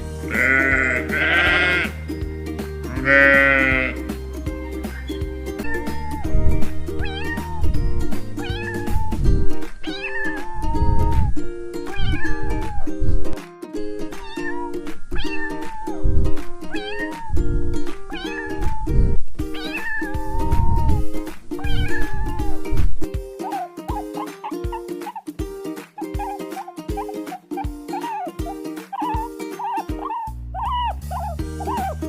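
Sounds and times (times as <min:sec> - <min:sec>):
backing music with steady beat: 0:00.0 - 0:09.8, 0:22.4 - 0:32.0
cat meowing: 0:05.6 - 0:06.3, 0:07.0 - 0:07.7, 0:08.4 - 0:09.2, 0:09.8 - 0:11.1, 0:11.9 - 0:12.9, 0:14.2 - 0:16.0, 0:16.7 - 0:17.4, 0:18.1 - 0:18.9, 0:19.6 - 0:21.0, 0:21.6 - 0:22.6, 0:27.9 - 0:32.0.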